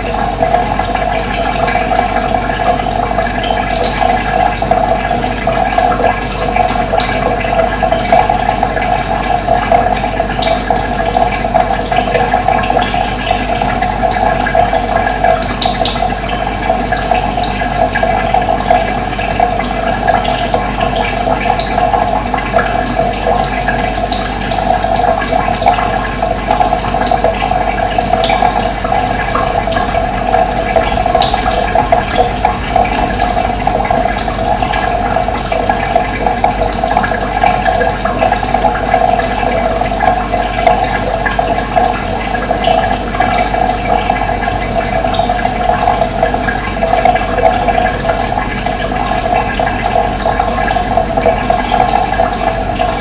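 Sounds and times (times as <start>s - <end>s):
running water: 0.0s - 53.0s
high water splashes: 25.5s - 39.4s.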